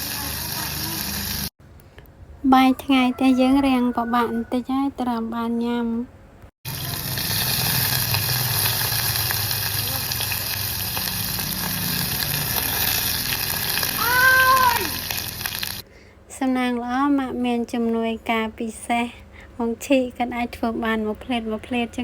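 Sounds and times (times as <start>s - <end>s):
food sizzling in a pot: 0.0s - 1.5s, 6.7s - 15.8s.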